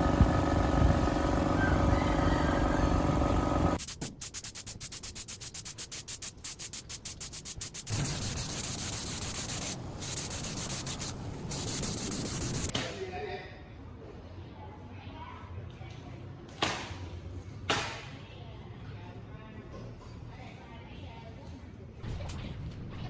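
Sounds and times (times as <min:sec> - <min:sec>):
sanding tool hum: 0:00.0 - 0:04.8, 0:05.7 - 0:12.7
rhythmic sanding strokes: 0:03.8 - 0:12.7.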